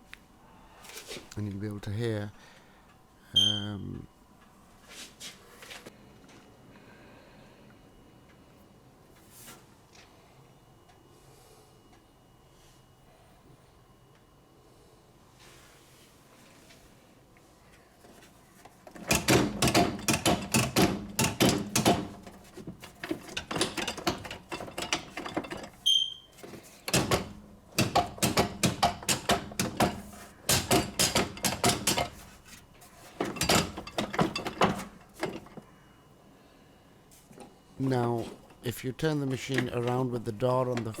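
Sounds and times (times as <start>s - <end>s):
brief high tone: 3.4s - 3.9s
washing machine rattling and knocking: 18.8s - 25.8s, 26.5s - 35.6s.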